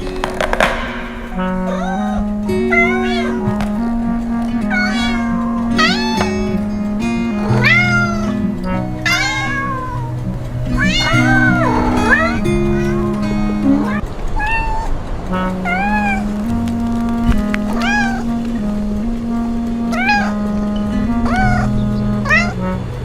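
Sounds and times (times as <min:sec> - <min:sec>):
background music with held notes: 0:00.0 - 0:14.1, 0:15.2 - 0:23.0
cat meowing: 0:01.6 - 0:03.6, 0:04.7 - 0:06.4, 0:07.5 - 0:08.4, 0:09.0 - 0:16.3, 0:17.7 - 0:18.4, 0:19.9 - 0:20.4, 0:21.3 - 0:22.6.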